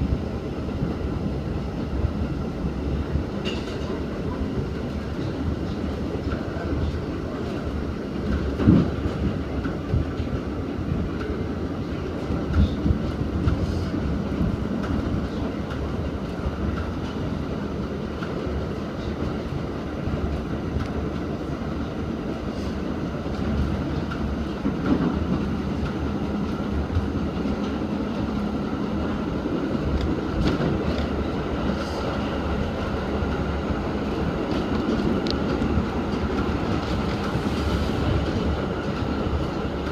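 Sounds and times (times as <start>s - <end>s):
subway wheels rumbling on rail: 0.0s - 39.9s
loud knocks from train: 8.3s - 10.2s.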